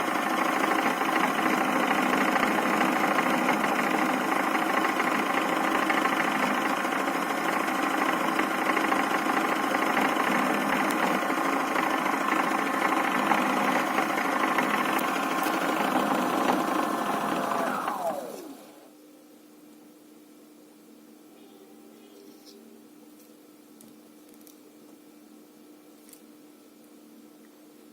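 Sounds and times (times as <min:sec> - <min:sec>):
toy washing machine motor whirring: 0:00.0 - 0:18.8.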